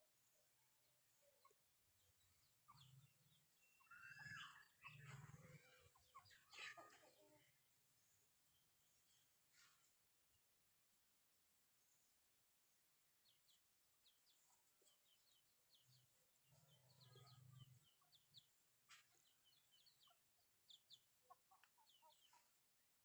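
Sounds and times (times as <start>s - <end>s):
chickens peeping: 2.3s - 7.4s, 13.2s - 22.6s.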